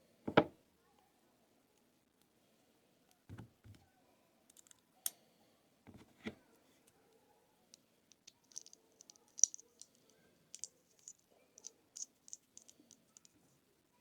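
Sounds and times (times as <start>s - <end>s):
fidget spinner metal clicks: 8.1s - 10.0s, 10.6s - 13.3s.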